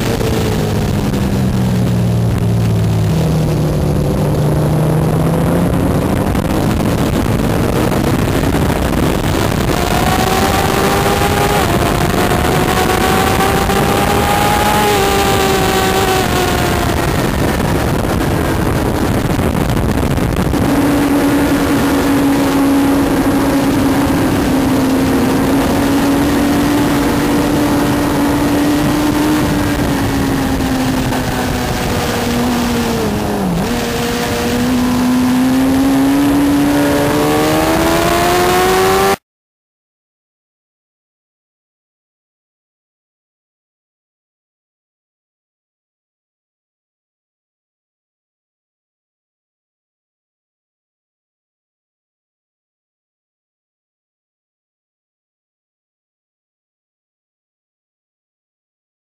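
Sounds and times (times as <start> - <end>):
motorcycle engine at speed: 0.0 - 39.2
wind rush on microphone: 0.0 - 39.2.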